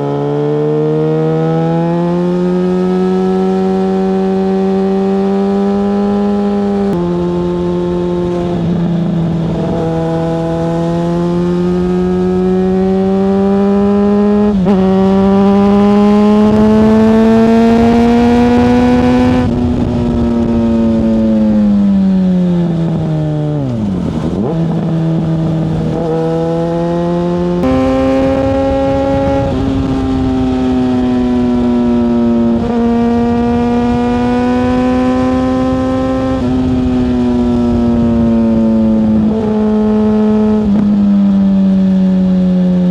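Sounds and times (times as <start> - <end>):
motorcycle engine while riding: 0.0 - 42.9.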